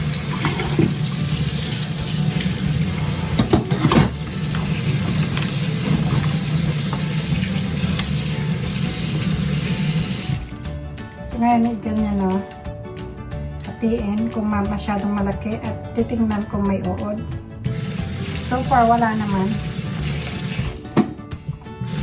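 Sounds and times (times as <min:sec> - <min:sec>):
tap water running into sink: 0:00.0 - 0:10.7, 0:17.7 - 0:21.2, 0:21.8 - 0:22.0.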